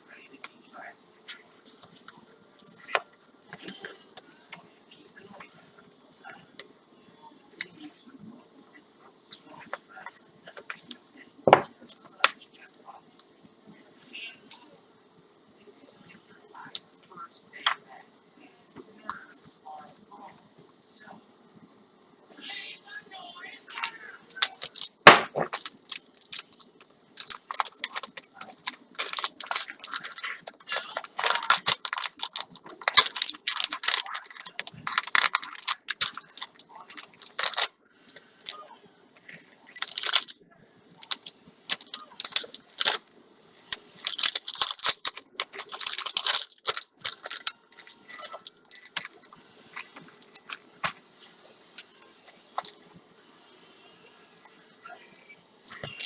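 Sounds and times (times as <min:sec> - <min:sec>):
packaging crinkling and tearing: 0:23.7 - 0:38.6, 0:39.8 - 0:40.4, 0:41.0 - 0:52.8.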